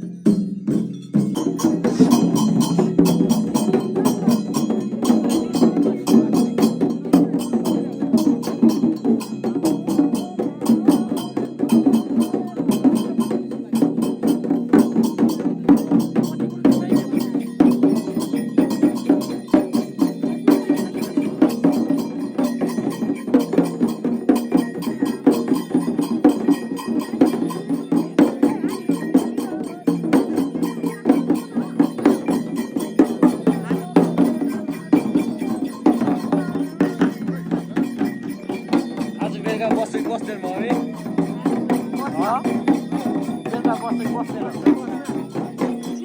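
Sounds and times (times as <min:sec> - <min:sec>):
fast percussion beating: 0:00.0 - 0:46.0.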